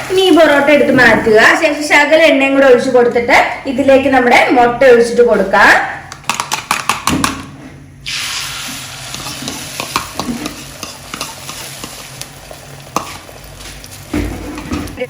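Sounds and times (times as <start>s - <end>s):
sharp clicks and taps: 6.1s - 7.4s
egg sizzling in frying pan: 8.1s - 14.6s
spatula knocking in pan: 9.2s - 12.0s.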